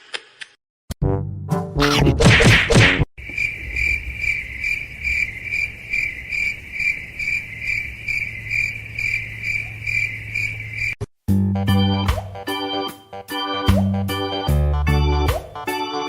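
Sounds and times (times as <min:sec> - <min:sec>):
insect chirping: 0:03.2 - 0:11.0.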